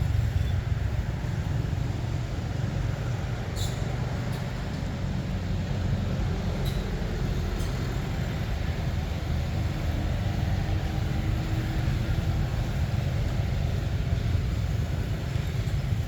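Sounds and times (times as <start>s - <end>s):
steady low rumble: 0.0s - 3.4s.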